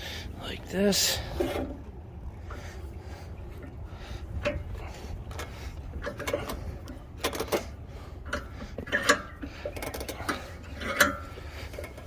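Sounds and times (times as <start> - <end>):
low steady rumble: 0.0 - 12.0
metal clicks and clanks: 4.4 - 12.0.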